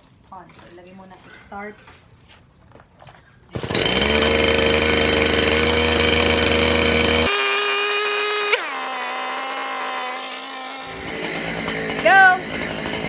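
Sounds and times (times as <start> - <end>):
brush cutter engine running: 3.6 - 13.0.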